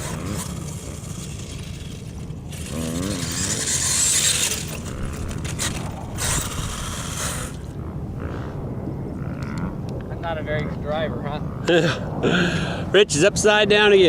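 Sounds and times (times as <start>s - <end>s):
toy truck motor whirring: 0.0s - 7.8s.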